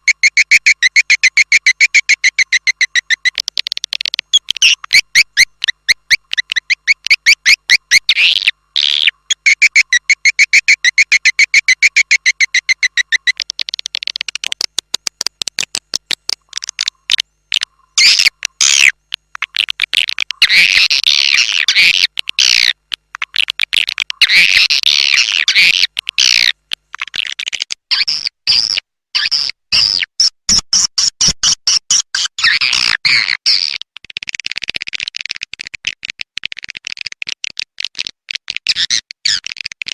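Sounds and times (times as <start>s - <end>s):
swiftlets chittering and clicking: 0.1s - 27.6s.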